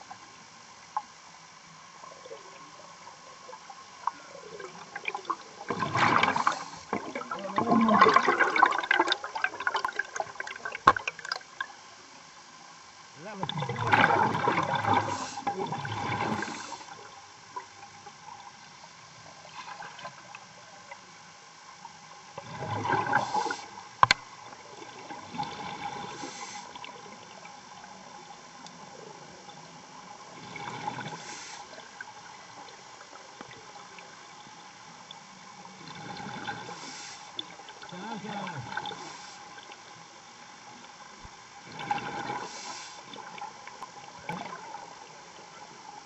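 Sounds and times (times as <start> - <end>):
steady hum: 0.0 - 46.0
exhaled bubbles rushing: 4.4 - 11.7, 13.3 - 17.1, 22.4 - 23.8, 35.8 - 36.8, 41.6 - 45.2.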